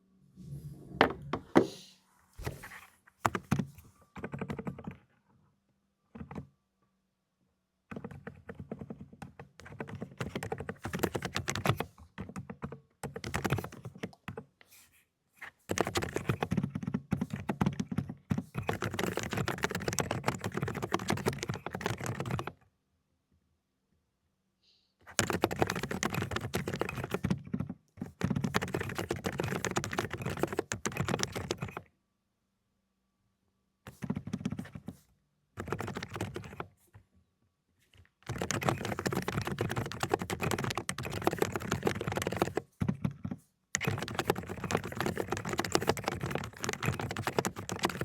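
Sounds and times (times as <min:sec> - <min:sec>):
fast typing on mechanical keyboard: 0:03.2 - 0:05.0, 0:07.9 - 0:14.5, 0:15.4 - 0:22.6, 0:25.0 - 0:31.9, 0:33.9 - 0:35.0, 0:35.6 - 0:36.7, 0:38.1 - 0:48.0.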